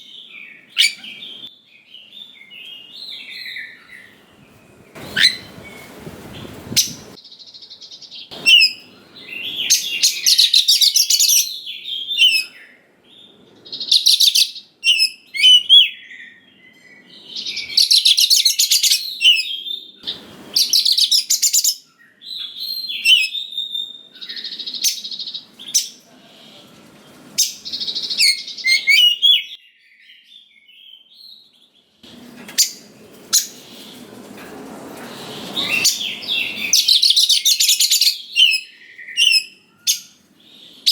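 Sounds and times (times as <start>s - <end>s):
bird singing whistles and chatter: 0.0s - 1.5s, 4.9s - 7.2s, 8.2s - 12.8s, 13.7s - 26.0s, 27.4s - 30.2s, 35.2s - 40.9s.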